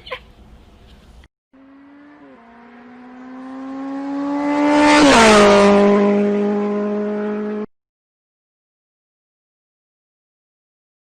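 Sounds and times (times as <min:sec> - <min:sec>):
vehicle engine passing by: 0:01.6 - 0:07.7.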